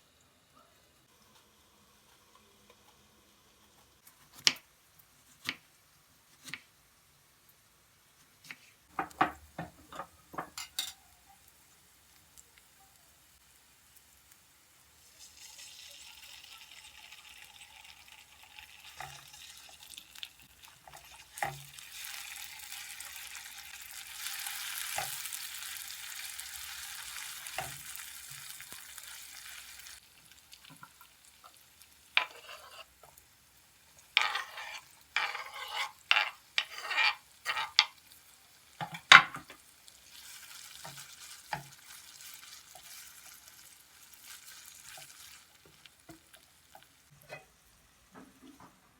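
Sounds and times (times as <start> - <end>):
food sizzling in a frying pan: 1.0 - 48.8
utensil scraping a pan: 32.2 - 33.2, 34.1 - 38.0.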